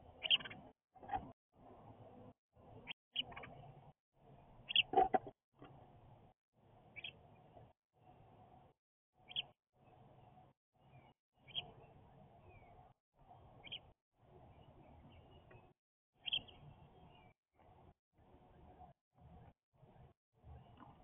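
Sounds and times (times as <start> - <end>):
bird chirping: 0.1 - 1.2, 2.8 - 3.8, 4.6 - 5.3, 6.9 - 7.5, 9.2 - 17.4.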